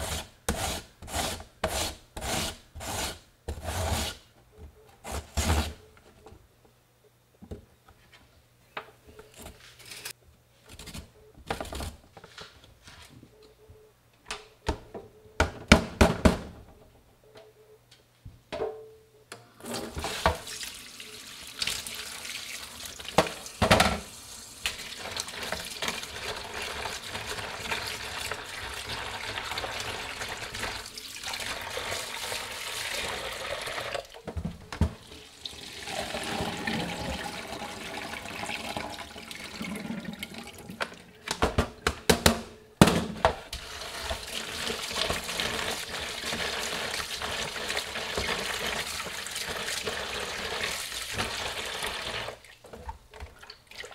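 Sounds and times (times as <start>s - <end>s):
tap water running into basin: 19.6s - 34.2s, 35.0s - 41.1s, 43.6s - 53.9s.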